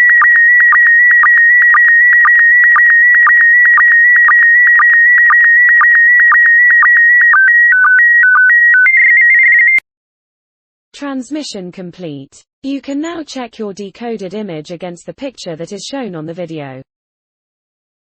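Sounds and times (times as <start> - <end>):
electronic image signal tones: 0.0 - 9.8.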